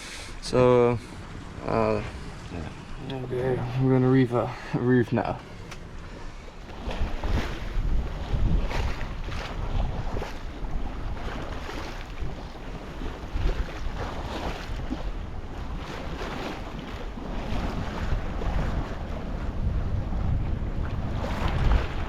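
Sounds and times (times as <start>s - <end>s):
water splashing along hull: 0.0s - 22.0s
wind buffeting microphone: 5.2s - 22.0s.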